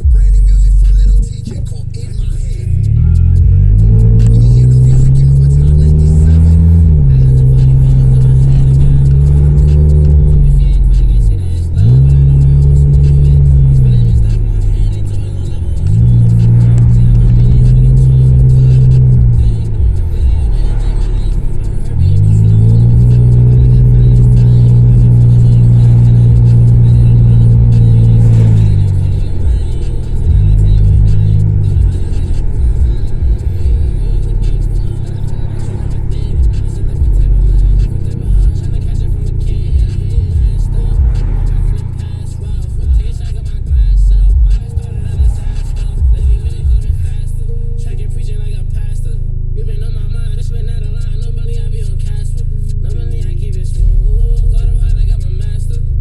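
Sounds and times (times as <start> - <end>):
car engine revving loudly: 0.0 - 56.0.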